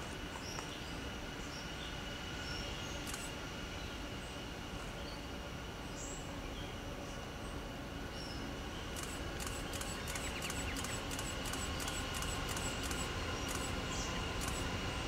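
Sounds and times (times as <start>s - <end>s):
distant train rumble: 0.0s - 15.0s
faint high clicks: 3.0s - 3.3s, 9.0s - 13.8s, 14.4s - 14.7s.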